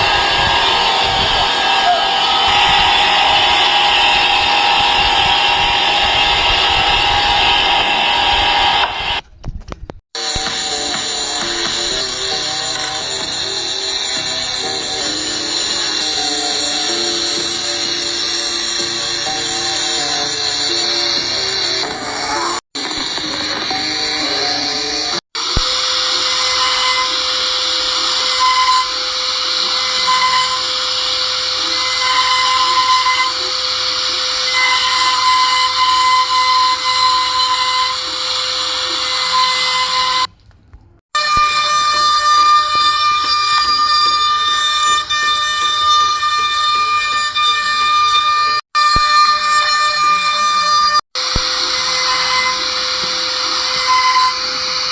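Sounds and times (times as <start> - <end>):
machinery hissing and grinding: 0.0 - 9.2, 10.2 - 40.3, 49.3 - 54.9
short high squeals: 10.2 - 40.3, 41.2 - 54.9.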